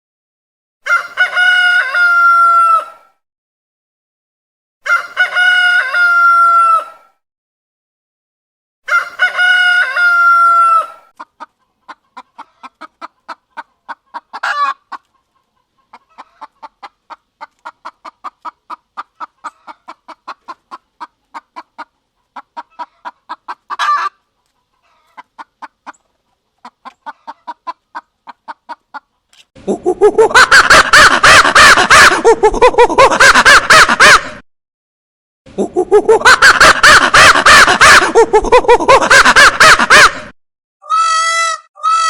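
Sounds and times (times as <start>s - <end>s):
rooster crowing: 0.8s - 3.0s, 4.8s - 7.1s, 8.8s - 11.0s
hen clucking: 8.9s - 34.4s, 35.6s - 42.0s
hen squawking: 40.8s - 42.0s.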